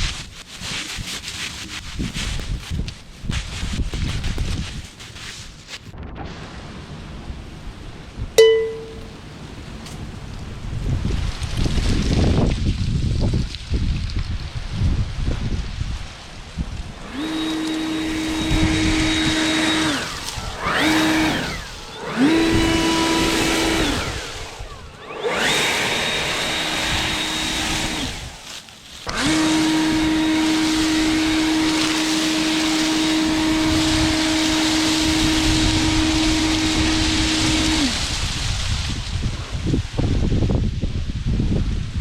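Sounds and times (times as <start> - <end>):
wind buffeting microphone: 9.4 - 28.4, 29.1 - 42.0
leaf blower whining: 16.8 - 38.7.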